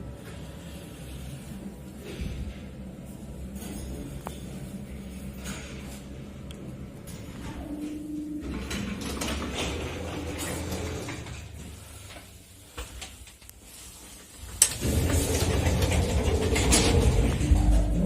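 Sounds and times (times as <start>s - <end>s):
elevator motor humming: 6.4s - 11.9s, 14.6s - 18.0s
machinery clicks: 14.6s - 18.0s.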